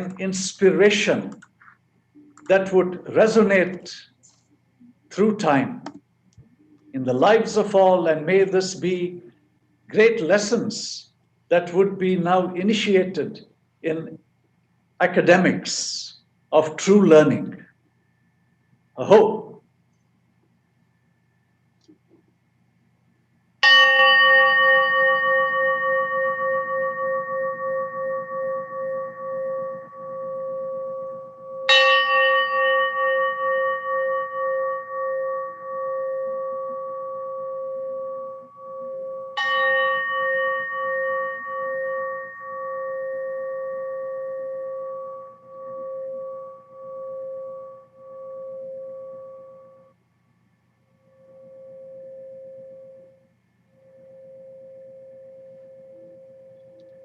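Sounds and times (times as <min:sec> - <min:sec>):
gong ringing: 0:23.6 - 0:49.8.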